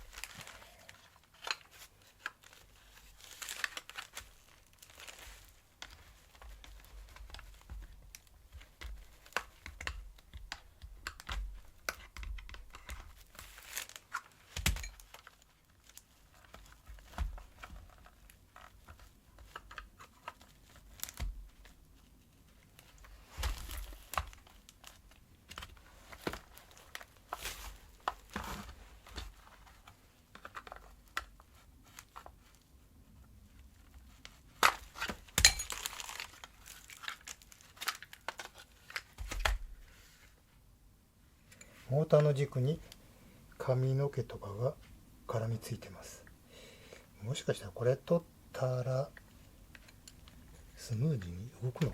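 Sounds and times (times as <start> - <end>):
plastic parts clicking and knocking: 5.8 - 13.4.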